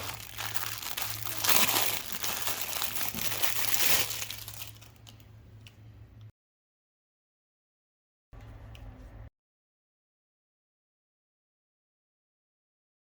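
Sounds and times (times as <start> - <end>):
plastic packaging crinkling: 0.0 - 5.1.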